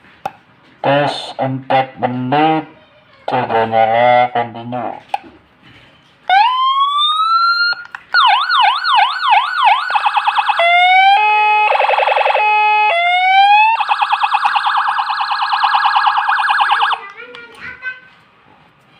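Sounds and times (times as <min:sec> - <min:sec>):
electronic siren wailing and yelping: 0:06.3 - 0:17.0.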